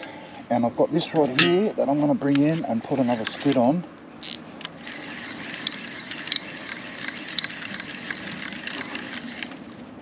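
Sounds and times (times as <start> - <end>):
fishing reel whirring: 4.2 - 9.6
reel ticking: 4.8 - 9.6.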